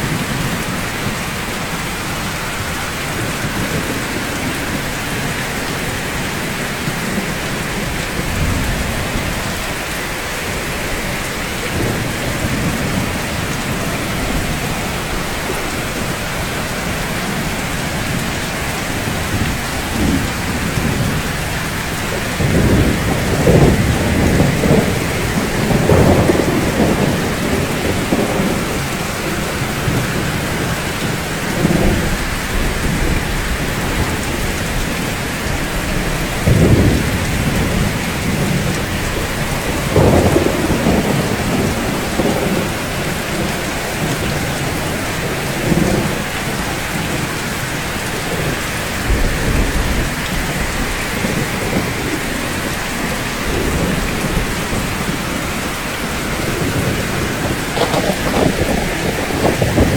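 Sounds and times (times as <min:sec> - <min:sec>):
low rolling thunder: 0:00.0 - 0:59.9
steady rainfall: 0:00.0 - 0:59.9.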